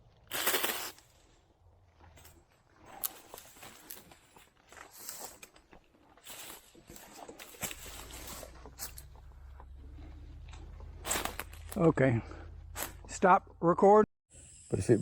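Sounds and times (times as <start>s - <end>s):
rustling of brush and leaves: 0.0s - 12.0s
low steady hum: 7.4s - 13.8s.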